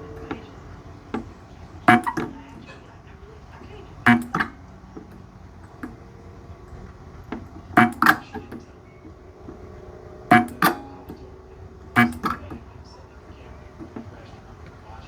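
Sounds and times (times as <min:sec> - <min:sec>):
faint steady hum: 0:00.0 - 0:15.0
spot welder snaps: 0:03.6 - 0:06.1, 0:10.3 - 0:11.2, 0:12.0 - 0:14.8.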